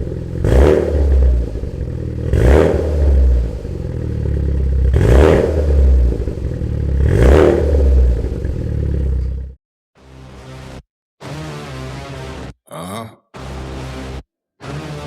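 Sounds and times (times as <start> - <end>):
car engine revving: 0.0 - 9.2.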